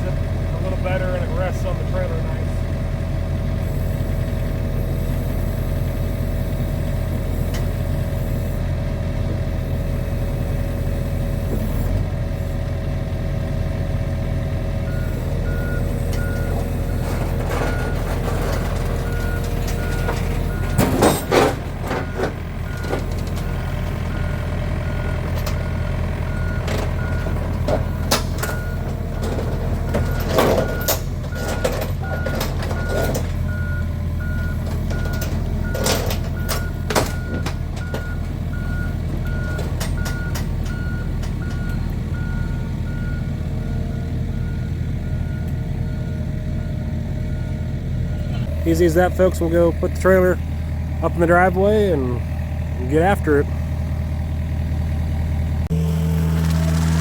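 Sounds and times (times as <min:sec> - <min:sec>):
excavator diesel engine running: 0:00.0 - 0:57.0
loud metallic clanks: 0:17.0 - 0:23.5.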